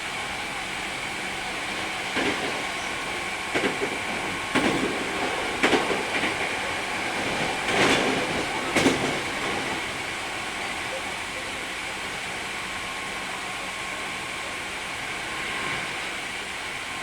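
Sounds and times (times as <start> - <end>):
electric train running: 0.0 - 17.0
wheels clacking over rail joints: 2.1 - 11.0.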